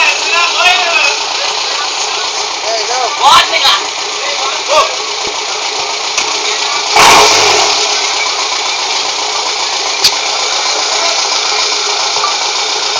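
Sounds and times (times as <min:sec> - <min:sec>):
car engine revving: 0:00.0 - 0:12.9.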